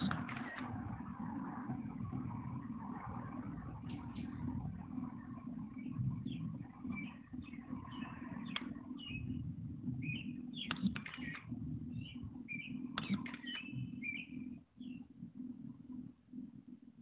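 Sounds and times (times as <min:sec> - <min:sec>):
sharp clicks: 0:00.0 - 0:00.8, 0:07.9 - 0:08.8, 0:10.6 - 0:14.3
small birds chirping: 0:00.0 - 0:16.4
low steady hum: 0:00.0 - 0:17.0.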